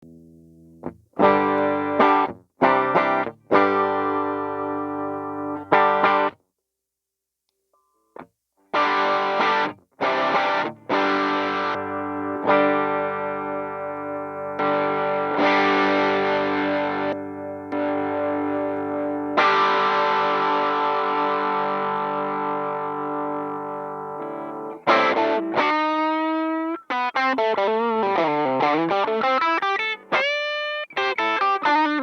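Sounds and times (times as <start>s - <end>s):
distorted electric guitar chords: 0.0s - 6.4s, 8.8s - 32.0s.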